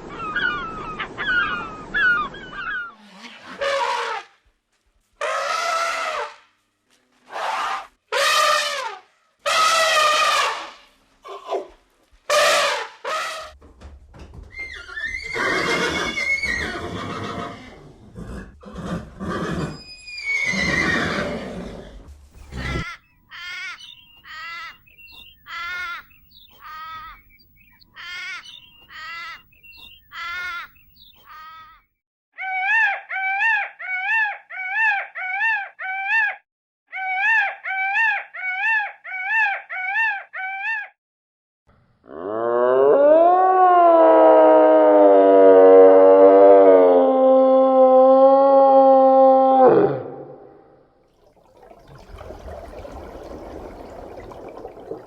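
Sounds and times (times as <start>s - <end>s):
animal calls: 22.4s - 31.8s, 32.4s - 41.0s.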